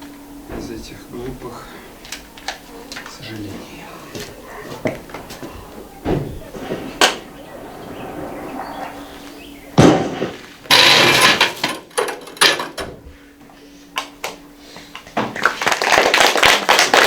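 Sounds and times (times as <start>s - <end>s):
loud thud: 5.0s - 11.5s
audience clapping: 15.4s - 17.0s.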